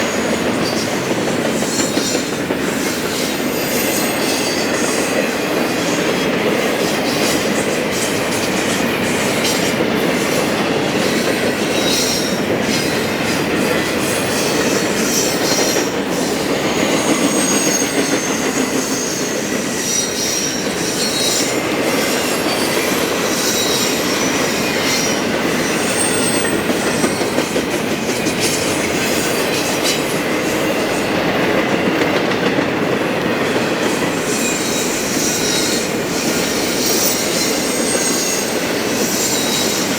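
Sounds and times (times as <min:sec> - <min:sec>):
freight train rumbling past: 0:00.0 - 0:39.9
rail-joint clicks: 0:00.0 - 0:39.9
high-pitched wheel squeals: 0:34.3 - 0:39.9.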